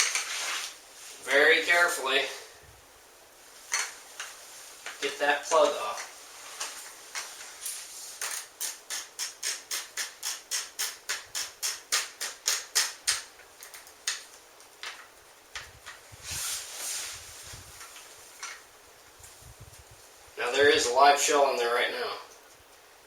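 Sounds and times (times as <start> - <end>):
handling rustle: 0.0 - 2.0, 14.4 - 20.3.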